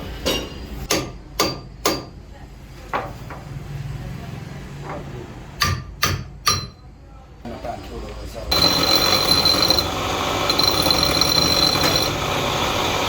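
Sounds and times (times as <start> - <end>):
hammer striking steel: 0.3 - 2.1, 5.6 - 6.8.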